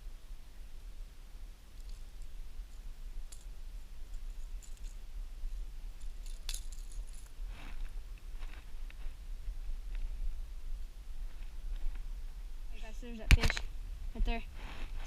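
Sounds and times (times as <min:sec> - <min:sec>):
steady low rumble: 0:00.0 - 0:15.0
fishing lure rattling and jingling: 0:04.1 - 0:05.0, 0:06.0 - 0:07.3.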